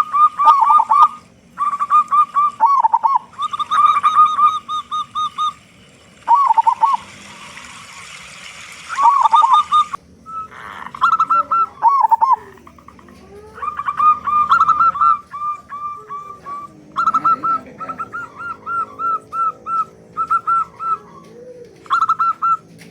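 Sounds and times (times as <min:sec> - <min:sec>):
doves cooing: 0:00.0 - 0:22.9
steady hiss: 0:02.7 - 0:11.0.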